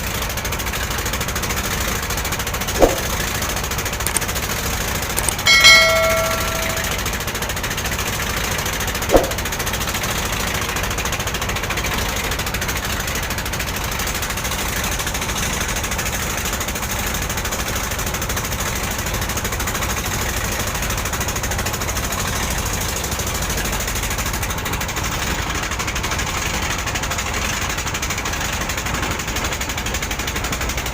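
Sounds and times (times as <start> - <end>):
brief sharp sound: 5.5 - 7.0, 9.1 - 9.4.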